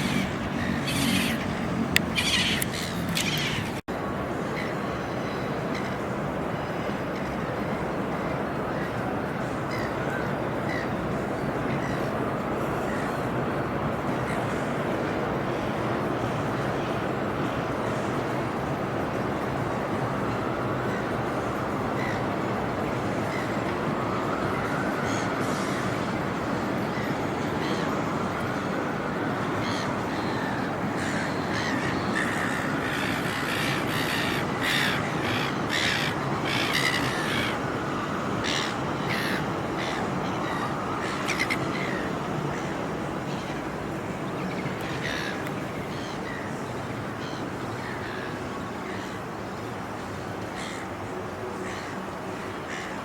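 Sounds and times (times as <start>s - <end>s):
crows cawing: 0.0s - 3.8s, 29.5s - 43.5s, 44.8s - 46.6s, 52.7s - 53.0s
steady rumble from railway: 0.0s - 53.0s.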